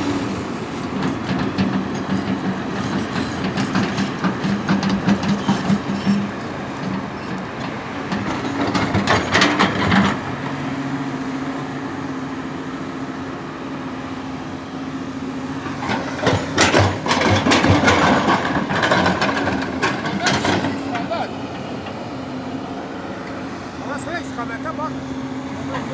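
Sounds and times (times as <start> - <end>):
heavy machinery diesel engine running: 0.0 - 25.9
clattering knocks and scraping: 0.8 - 10.3, 15.6 - 22.0.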